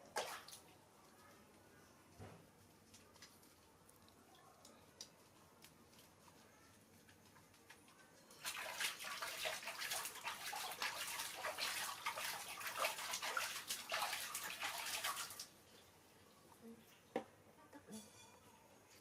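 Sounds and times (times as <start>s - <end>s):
water pouring into bath: 8.3s - 15.9s.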